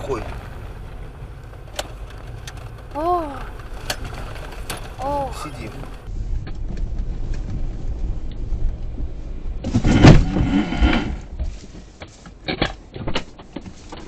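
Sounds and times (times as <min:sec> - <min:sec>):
loud rough noise: 0:00.0 - 0:06.1
car road and engine rumble: 0:00.0 - 0:14.0.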